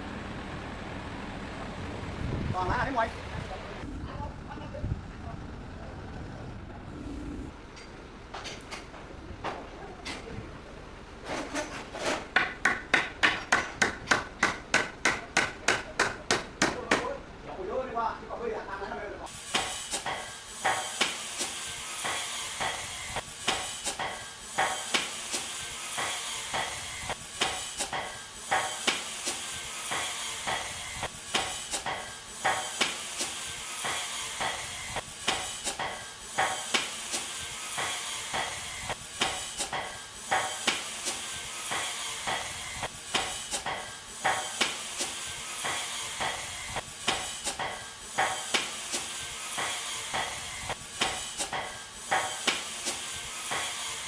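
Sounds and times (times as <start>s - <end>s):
hammer knocking on timber: 12.4s - 17.1s.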